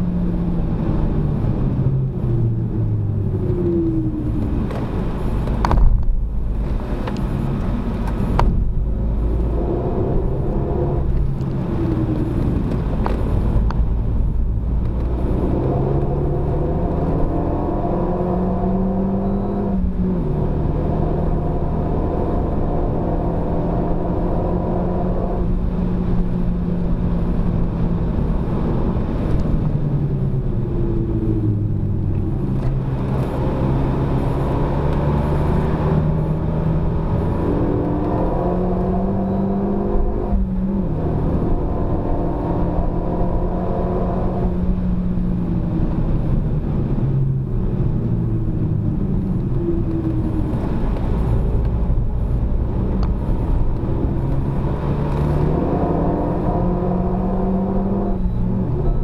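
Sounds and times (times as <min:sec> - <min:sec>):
car engine revving: 0:00.0 - 0:59.0
road and tyre rumble: 0:00.0 - 0:59.0
sharp thump: 0:08.3 - 0:08.8.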